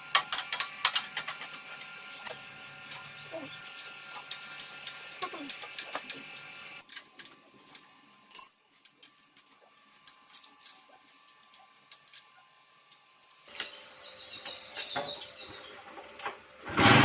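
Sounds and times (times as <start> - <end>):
small birds chirping: 9.5 - 11.7, 13.5 - 15.8.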